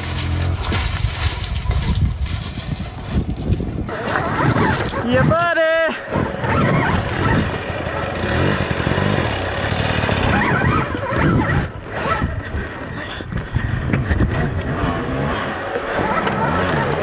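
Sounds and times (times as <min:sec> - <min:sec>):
tyres on rock: 0:00.0 - 0:17.0
electric dirt bike motor whine: 0:06.1 - 0:17.0.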